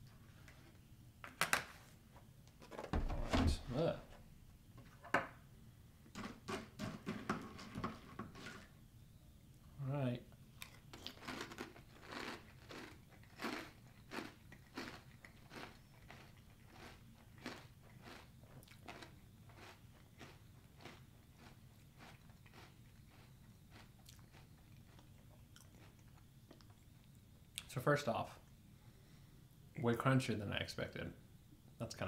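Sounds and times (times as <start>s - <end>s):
crunchy cereal chewing: 10.6s - 27.2s.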